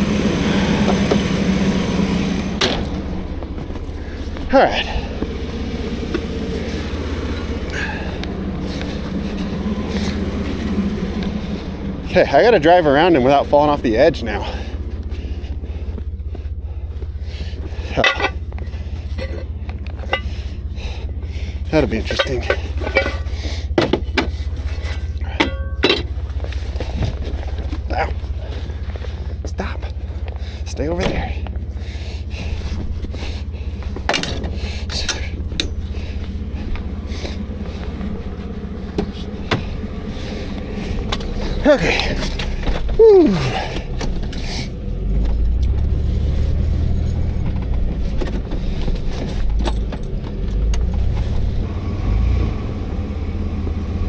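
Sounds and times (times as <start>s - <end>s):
engine low rumble: 0.0s - 54.0s
light clinks and rattles: 17.6s - 31.7s, 46.8s - 51.3s.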